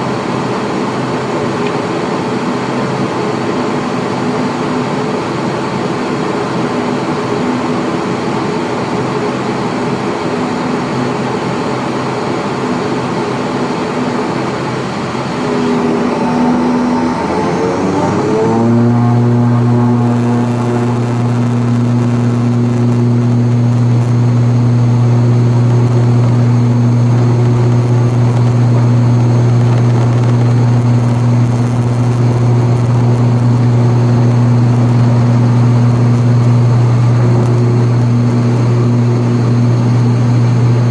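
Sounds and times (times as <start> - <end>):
turboprop propeller drone: 0.0 - 40.9.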